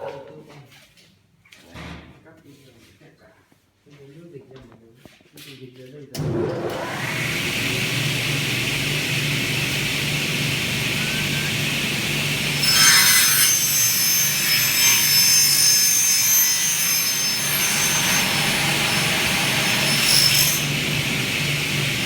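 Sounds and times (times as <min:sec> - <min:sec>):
saw cutting aluminium: 0:06.5 - 0:22.0.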